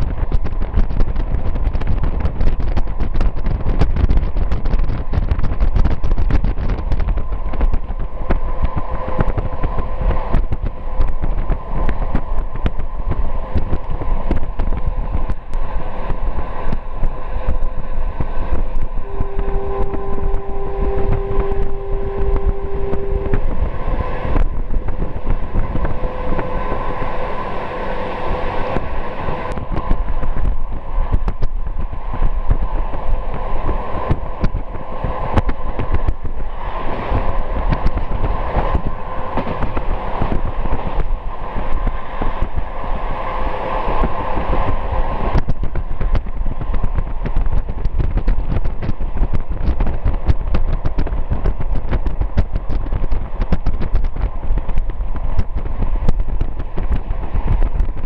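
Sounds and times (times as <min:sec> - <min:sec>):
train rumble from inside carriage: 0:00.0 - 0:58.0
held tone: 0:18.8 - 0:25.0.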